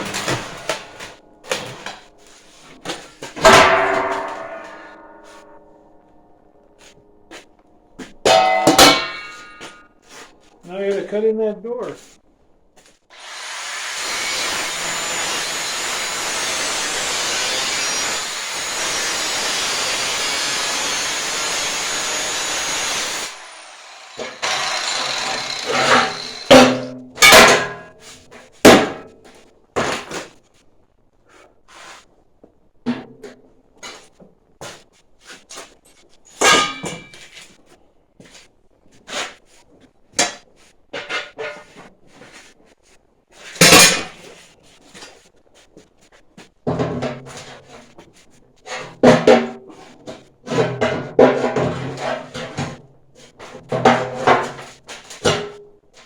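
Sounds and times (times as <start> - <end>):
angle grinder cutting steel: 13.1 - 26.8
grinder spinning down whine: 13.2 - 26.6.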